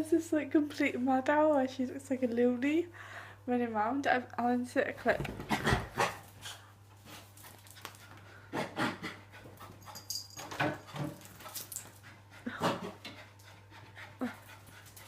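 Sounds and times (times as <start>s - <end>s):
low steady hum: 0.0s - 15.0s
puppy panting: 7.4s - 15.0s.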